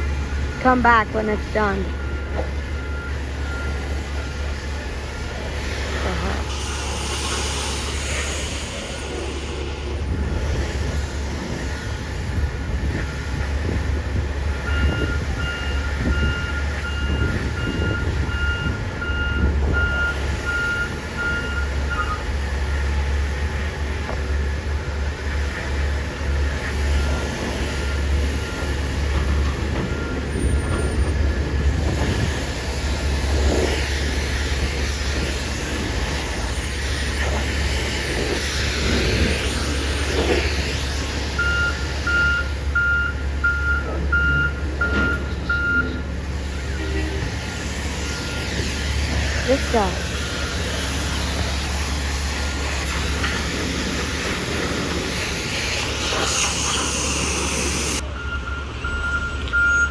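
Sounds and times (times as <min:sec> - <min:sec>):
garbage truck diesel engines: 0:00.0 - 0:59.9
faint high whine: 0:06.0 - 0:11.9.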